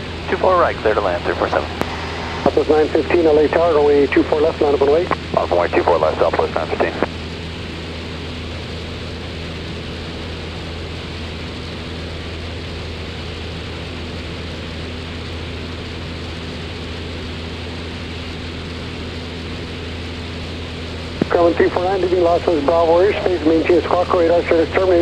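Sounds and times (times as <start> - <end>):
airflow rushing: 0.0 - 3.0
airplane engine and propeller drone: 0.0 - 25.0.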